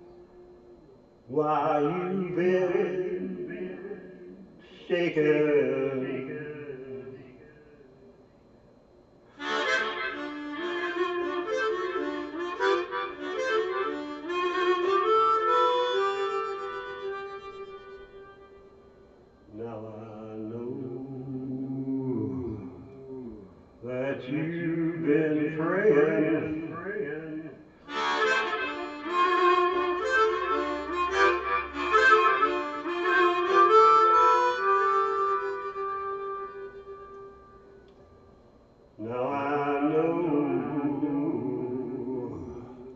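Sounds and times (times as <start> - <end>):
person singing: 0.0 - 7.5, 19.5 - 34.8, 39.0 - 42.9
harmonica playing blues: 9.3 - 19.0, 25.0 - 37.9.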